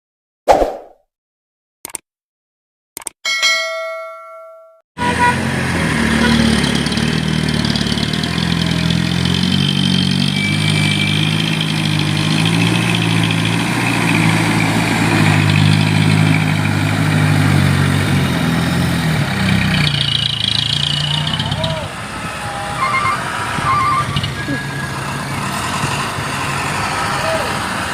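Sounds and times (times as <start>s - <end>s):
chime ringing: 3.3s - 4.8s
diesel truck engine running: 5.0s - 27.9s.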